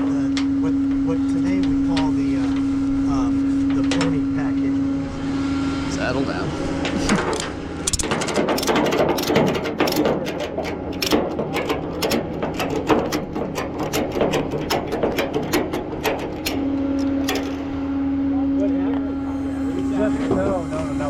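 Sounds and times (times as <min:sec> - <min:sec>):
steady hum: 0:00.0 - 0:21.0
ratchet strap clicking: 0:07.9 - 0:17.6.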